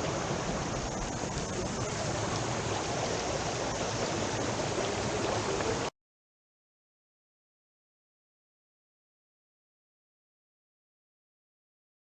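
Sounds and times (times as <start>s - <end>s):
stream rushing over rocks: 0.0s - 5.9s.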